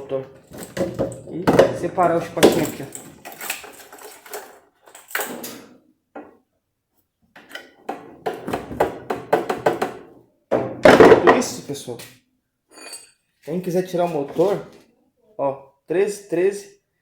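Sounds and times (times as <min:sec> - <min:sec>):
hand tools clicking: 0:00.6 - 0:05.1.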